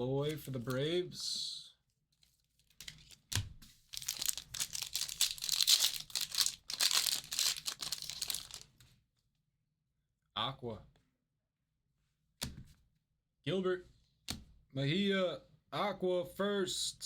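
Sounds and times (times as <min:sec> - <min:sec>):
foil wrapper crinkling and tearing: 0:03.8 - 0:08.7.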